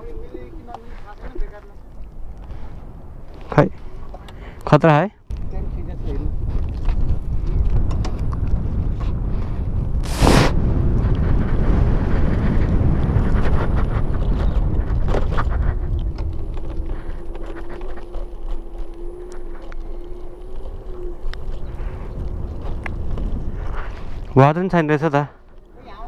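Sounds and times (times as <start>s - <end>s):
wind buffeting microphone: 0.0s - 26.0s
motorcycle riding noise: 5.4s - 24.2s.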